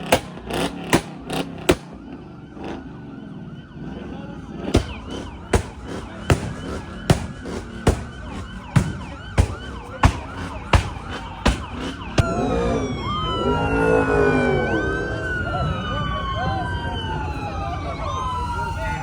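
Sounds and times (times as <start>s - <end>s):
police sirens wailing: 0.0s - 19.0s.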